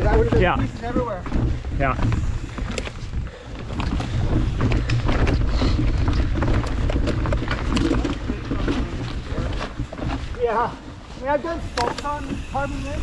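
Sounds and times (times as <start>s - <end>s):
bike rattling and clicking: 0.0s - 13.0s
low rumble of bike tyres: 0.0s - 13.0s
wind buffeting microphone: 0.0s - 13.0s.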